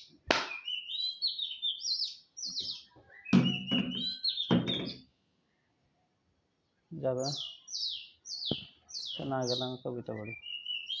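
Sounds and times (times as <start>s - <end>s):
small bird chirping: 0.0s - 5.8s, 6.6s - 11.0s.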